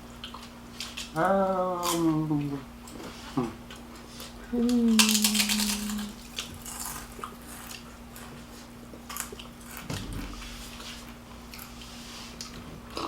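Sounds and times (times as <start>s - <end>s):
person chewing close-up: 0.0s - 1.2s, 1.8s - 9.9s
steady low hum: 0.0s - 13.0s.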